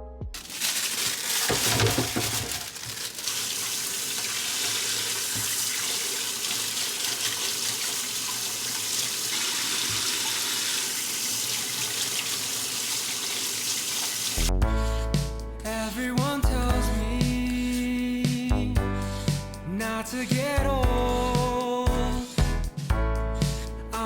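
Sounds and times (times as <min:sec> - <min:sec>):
tap water running into sink: 0:00.4 - 0:14.5.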